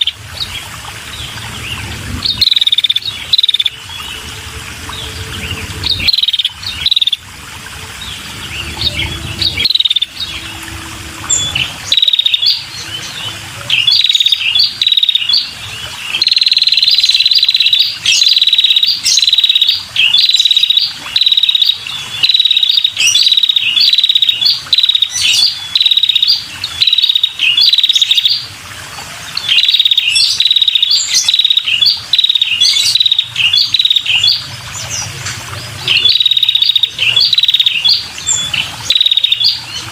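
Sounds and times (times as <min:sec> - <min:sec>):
bird chirping and trilling: 0:00.0 - 0:28.5, 0:29.3 - 0:39.9.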